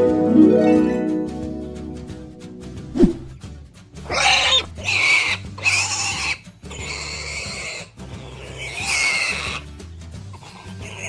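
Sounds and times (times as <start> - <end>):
pig calls: 4.0 - 9.7, 10.3 - 11.0.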